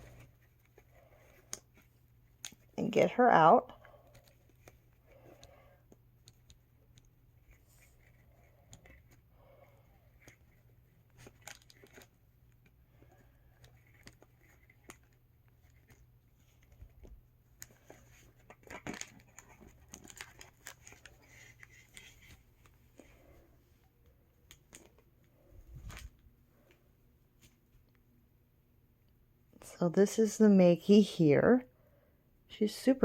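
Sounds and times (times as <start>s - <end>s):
low steady hum: 0.0s - 33.0s
packaging clicks snips and rustles: 10.2s - 12.8s, 17.6s - 22.8s.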